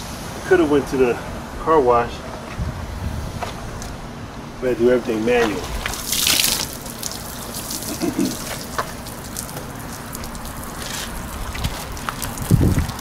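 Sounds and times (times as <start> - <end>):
water gushing: 5.3 - 13.0
water running and splashing: 5.5 - 13.0
water dripping: 5.8 - 13.0.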